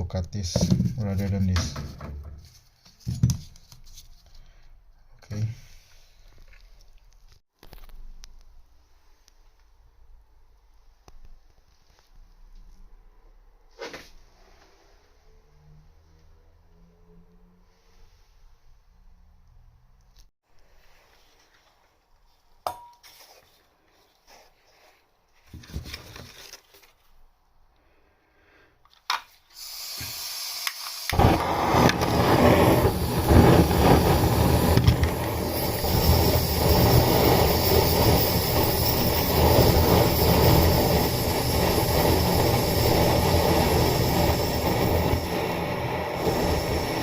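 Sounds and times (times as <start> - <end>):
gas hissing: 29.5 - 47.0
blowtorch flame roaring: 30.2 - 47.0.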